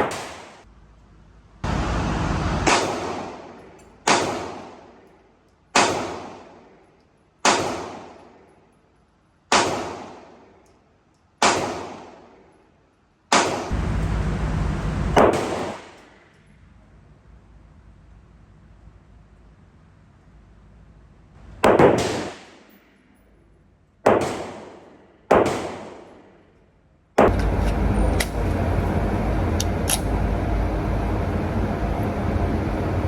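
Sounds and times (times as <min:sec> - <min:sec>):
gunshots echoing: 0:00.0 - 0:00.6, 0:02.5 - 0:05.1, 0:05.7 - 0:06.8, 0:07.4 - 0:08.4, 0:09.5 - 0:10.6, 0:11.4 - 0:12.5, 0:13.3 - 0:14.4, 0:15.0 - 0:16.3, 0:21.5 - 0:23.0, 0:24.0 - 0:26.4, 0:27.2 - 0:27.8
loud steady noise: 0:01.6 - 0:03.5, 0:13.5 - 0:15.8, 0:27.2 - 0:33.0.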